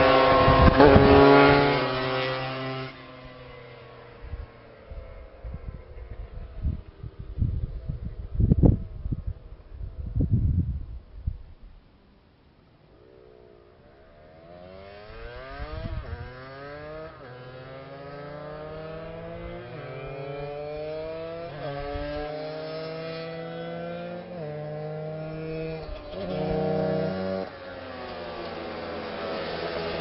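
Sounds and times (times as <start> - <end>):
two-stroke engine accelerating: 0.0 - 8.2, 13.5 - 30.0.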